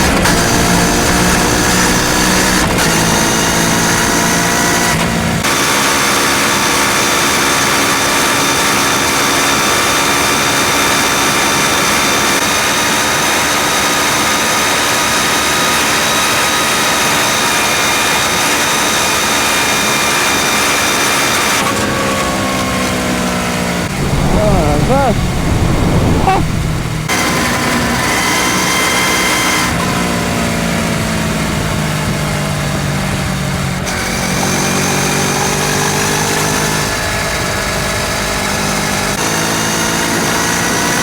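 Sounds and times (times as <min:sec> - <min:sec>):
motorcycle engine accelerating: 0:23.9 - 0:27.1.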